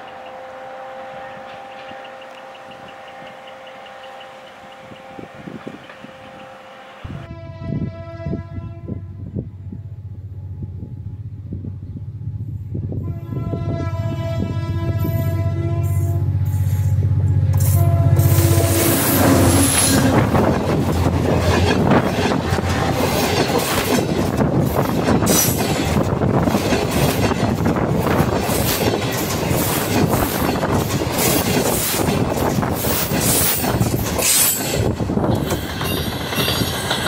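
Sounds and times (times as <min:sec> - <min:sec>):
train wheels rumbling on rails: 0:00.0 - 0:37.0
wheels clicking over rail joints: 0:19.6 - 0:37.0.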